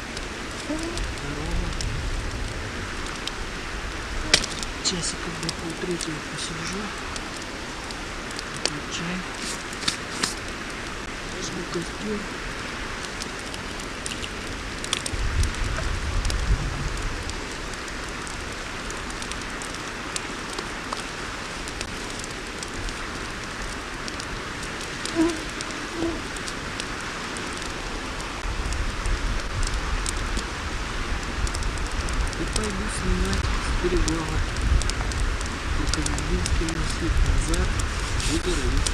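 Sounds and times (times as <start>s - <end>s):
low rumble on microphone: 0.0s - 9.8s, 13.6s - 19.6s, 28.4s - 38.9s
campfire crackling and popping: 0.0s - 38.9s.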